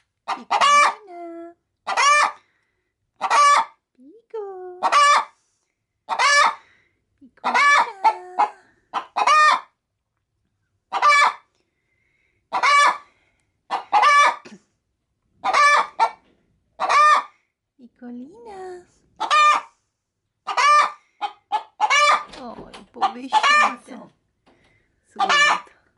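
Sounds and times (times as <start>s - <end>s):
hen cackling: 0.2s - 1.0s, 1.9s - 2.4s, 3.2s - 3.8s, 4.8s - 5.3s, 6.1s - 6.7s, 7.4s - 9.8s, 10.9s - 11.5s, 12.5s - 13.1s, 13.7s - 14.6s, 15.4s - 16.2s, 16.8s - 17.4s, 19.2s - 19.7s, 20.4s - 22.3s, 23.0s - 23.9s, 25.2s - 25.8s.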